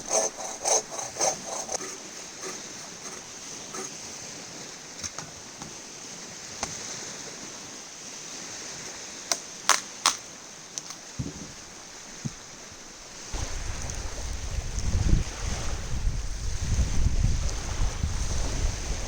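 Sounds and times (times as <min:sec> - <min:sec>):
wind: 0:00.0 - 0:19.0
surf: 0:13.2 - 0:19.0.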